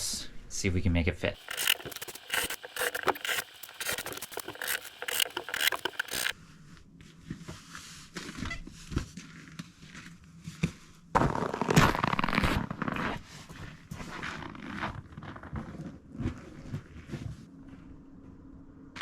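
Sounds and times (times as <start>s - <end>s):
dense scraping and rustling: 1.4s - 6.3s.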